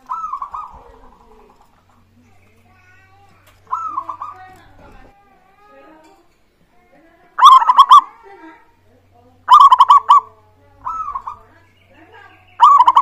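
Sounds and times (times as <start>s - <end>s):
dove cooing: 0.0s - 1.7s, 3.6s - 5.1s, 7.4s - 8.2s, 9.5s - 11.5s, 12.6s - 13.0s.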